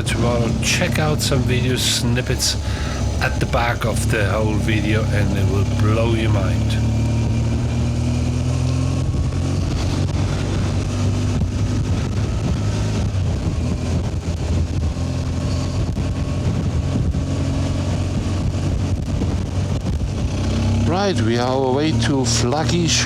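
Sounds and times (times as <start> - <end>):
motorcycle engine running: 0.0 - 23.0
wind noise: 9.0 - 20.6.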